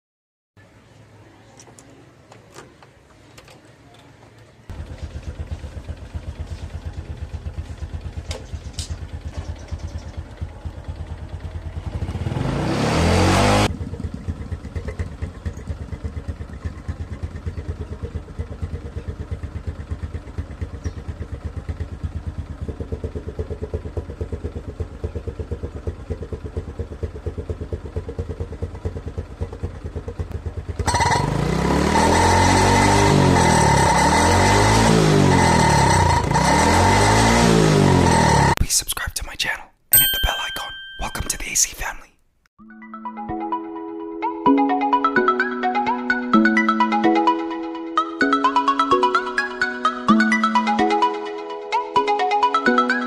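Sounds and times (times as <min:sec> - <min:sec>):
motorcycle engine idling and revving: 0:04.7 - 0:38.6.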